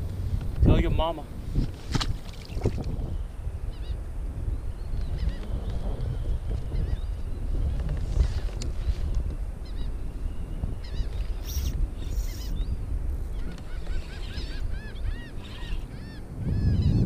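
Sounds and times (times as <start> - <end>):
water rumbling: 0.0 - 3.9
low rumble of wind: 0.0 - 17.0
birds honking calls: 13.4 - 17.0.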